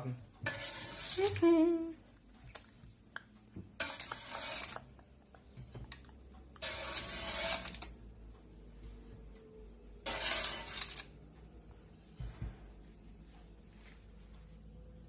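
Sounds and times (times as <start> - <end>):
metal spatula scraping baking paper: 0.4 - 1.5, 3.8 - 4.9, 6.6 - 7.9, 10.0 - 11.1.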